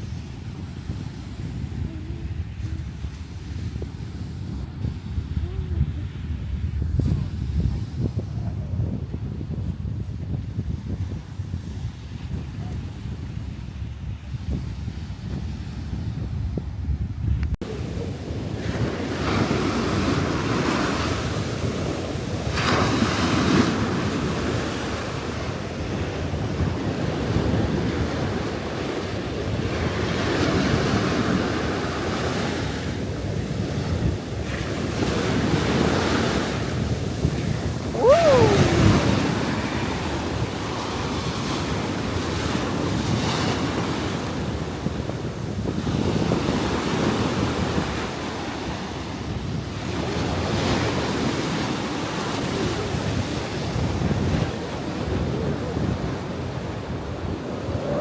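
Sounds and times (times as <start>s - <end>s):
wind buffeting microphone: 0.0s - 58.0s
ocean surf breaking: 17.6s - 49.2s
short falling cry: 37.8s - 39.4s.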